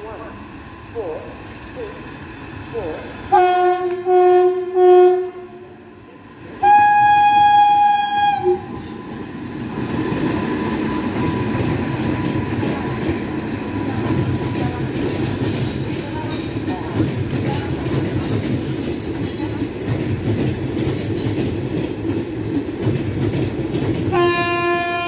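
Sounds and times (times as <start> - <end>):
train wheels rumbling on rails: 0.0 - 25.0
locomotive air horn blasts: 3.3 - 5.7, 6.6 - 8.8, 24.1 - 25.0.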